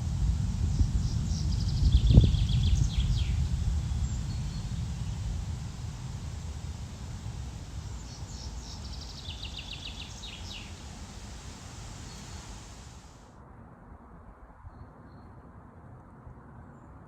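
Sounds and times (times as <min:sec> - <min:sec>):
low outdoor background noise: 0:00.0 - 0:17.0
songbird singing a rapid trill: 0:00.7 - 0:13.0.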